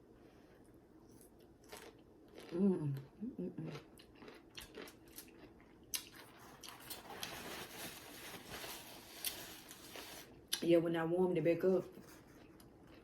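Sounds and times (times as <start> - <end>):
wet chewing of food: 1.1 - 3.0, 3.6 - 7.4.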